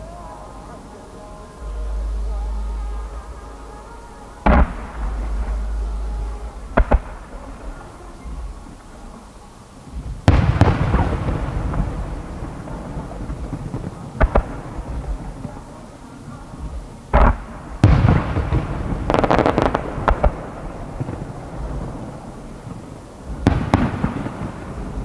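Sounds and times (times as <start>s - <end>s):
low rumbling echo: 0.0s - 25.0s
firework shells booming: 4.0s - 9.3s, 9.9s - 15.8s, 16.5s - 25.0s
sharp firework cracks: 4.0s - 25.0s.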